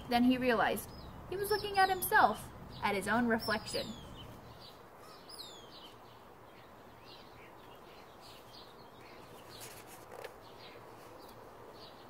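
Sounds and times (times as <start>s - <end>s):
small birds chirping faintly: 0.0s - 12.0s
paper page turning: 9.4s - 10.4s.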